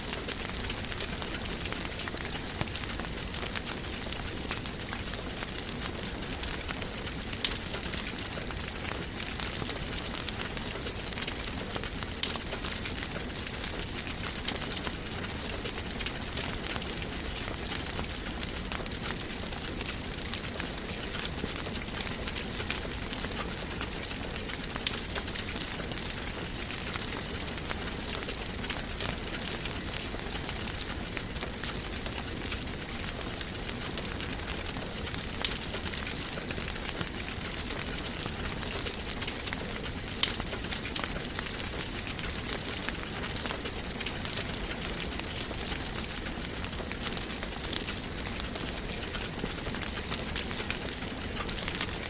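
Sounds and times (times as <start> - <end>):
wood fire crackling: 0.0 - 52.0.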